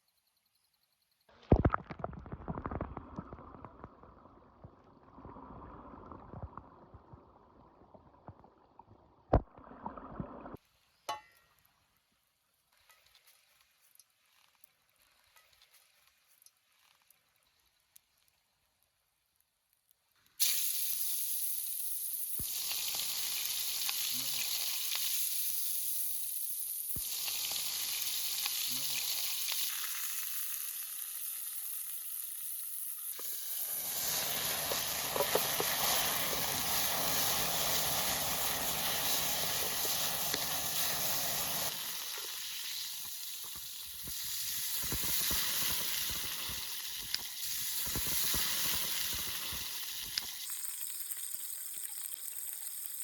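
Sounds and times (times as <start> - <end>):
food sizzling in hot fat: 20.4 - 53.0.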